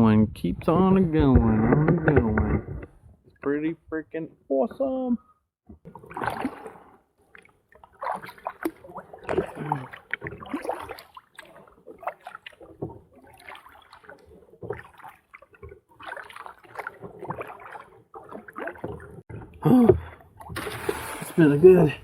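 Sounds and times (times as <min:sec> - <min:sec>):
paddle splashing water: 0:05.7 - 0:22.0.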